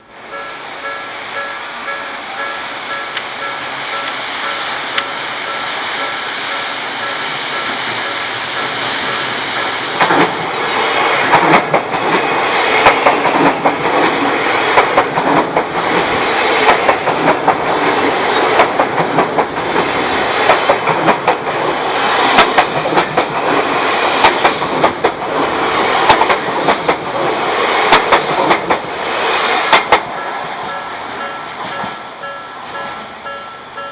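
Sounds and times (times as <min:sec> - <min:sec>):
electric train passing: 0:00.0 - 0:33.9
wheels clacking over rail joints: 0:07.0 - 0:10.5.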